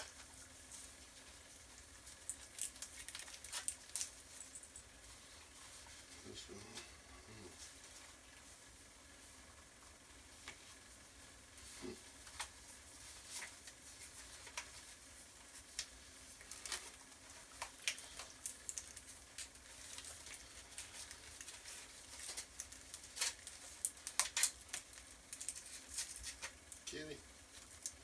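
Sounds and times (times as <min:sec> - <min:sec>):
plastic packaging clicks and crinkles: 0:02.0 - 0:04.8, 0:12.2 - 0:28.0.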